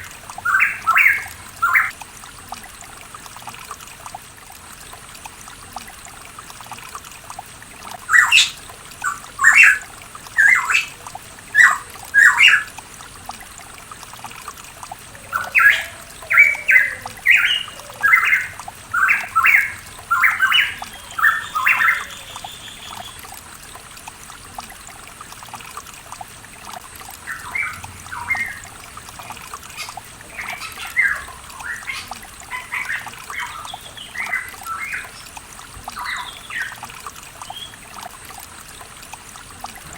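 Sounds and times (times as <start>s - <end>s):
bird calling loud notes: 0.0s - 1.9s, 8.0s - 12.8s, 15.0s - 23.3s, 27.2s - 35.3s
water trickling: 0.0s - 39.9s.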